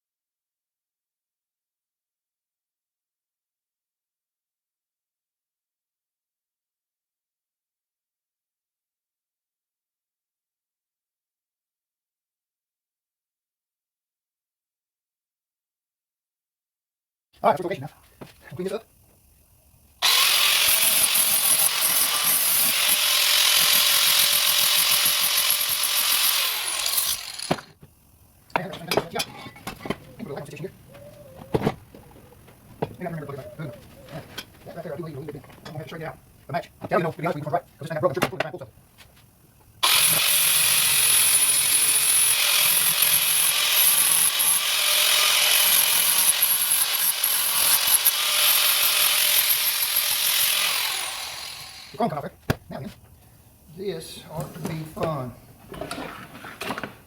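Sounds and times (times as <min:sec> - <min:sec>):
electric grinder grinding metal: 0:20.0 - 0:27.8, 0:39.8 - 0:52.1
grinder disc scraping: 0:20.0 - 0:27.9, 0:28.5 - 0:36.0, 0:54.4 - 0:57.0.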